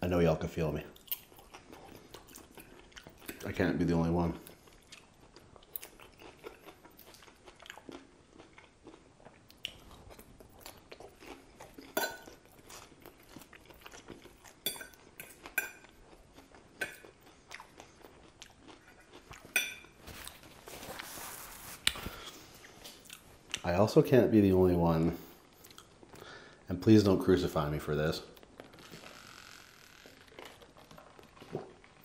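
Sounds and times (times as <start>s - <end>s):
crunching and chewing lettuce: 0.7s - 23.7s, 28.3s - 32.0s
paper napkin rustling: 20.0s - 22.3s.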